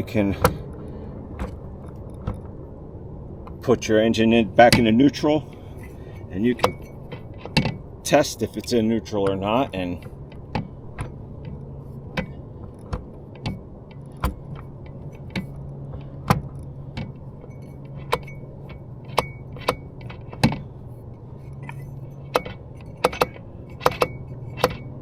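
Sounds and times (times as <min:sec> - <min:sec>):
metallic clicks and clunks: 0:00.0 - 0:02.6, 0:05.5 - 0:25.0.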